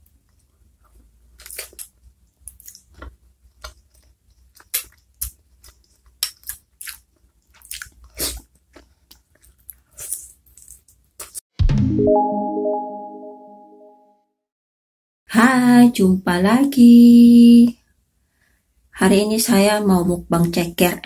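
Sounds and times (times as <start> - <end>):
wet smacks and chewing: 0.3 - 11.4.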